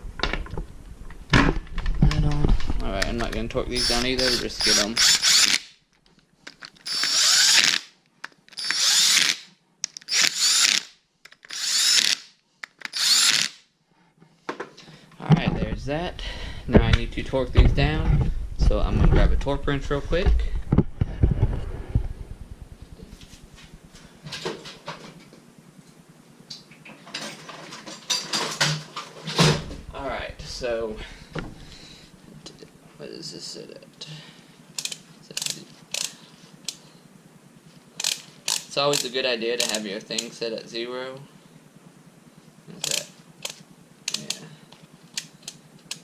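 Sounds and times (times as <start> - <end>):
power drill whining: 3.7 - 5.7, 6.8 - 7.9, 8.5 - 13.6
metal tools clanking: 27.1 - 29.5.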